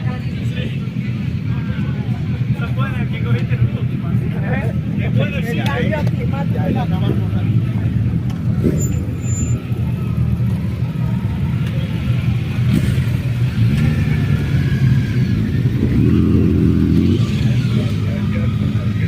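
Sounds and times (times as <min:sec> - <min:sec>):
motorcycle engine revving: 0:06.4 - 0:19.0.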